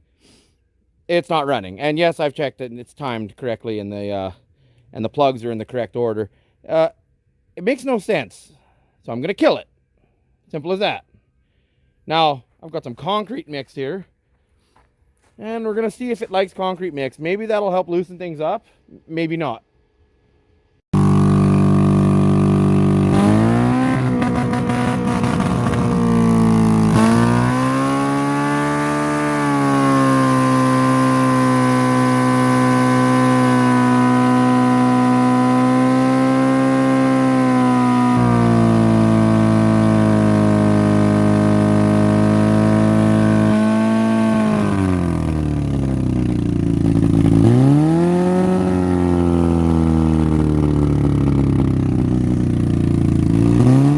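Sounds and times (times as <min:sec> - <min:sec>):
car engine revving: 0:21.0 - 0:53.9.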